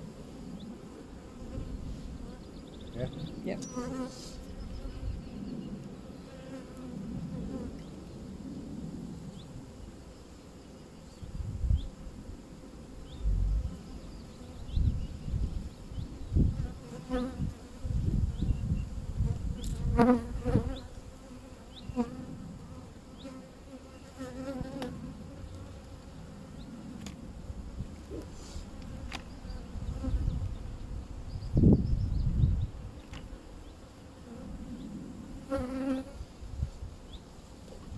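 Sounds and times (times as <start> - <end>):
bee flying close past: 13.0 - 30.6, 33.3 - 37.2.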